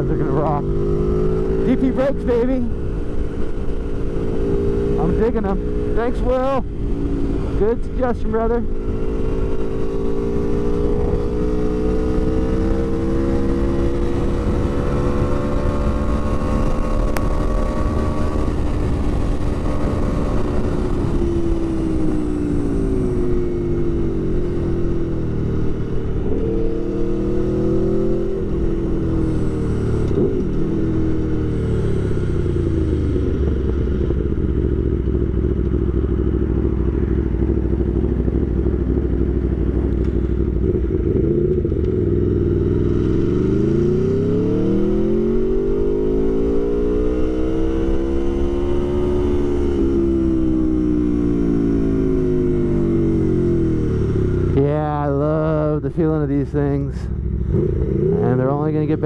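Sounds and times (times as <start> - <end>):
wind noise: 0.0 - 36.1
motorcycle engine revving: 0.0 - 59.0.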